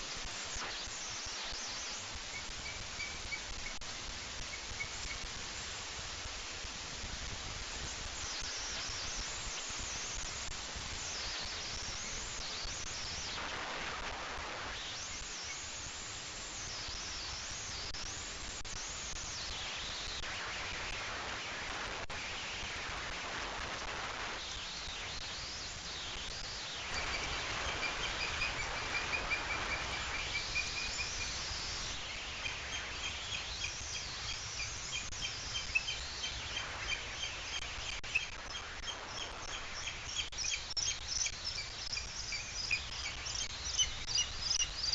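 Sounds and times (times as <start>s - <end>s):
steady background noise: 0.0s - 44.9s
birds singing whistled phrases: 2.2s - 5.3s, 26.8s - 44.9s
rapid repeated chirps: 26.9s - 44.9s.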